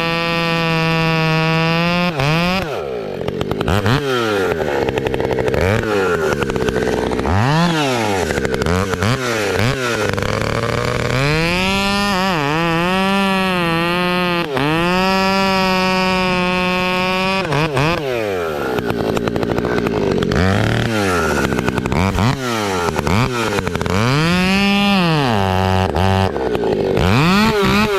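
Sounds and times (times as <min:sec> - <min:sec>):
chainsaw revving: 0:00.0 - 0:27.9.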